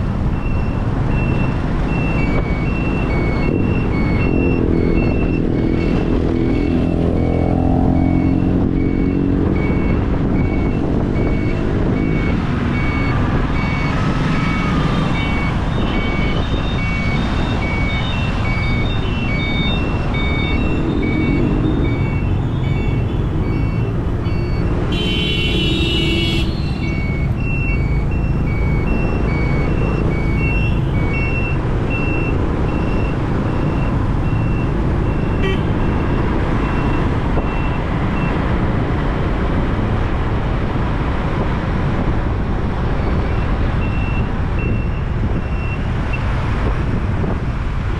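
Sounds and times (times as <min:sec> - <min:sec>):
motorbike engine and road noise: 0:00.0 - 0:47.9
rapid electronic beeps: 0:00.3 - 0:24.9, 0:26.5 - 0:37.8.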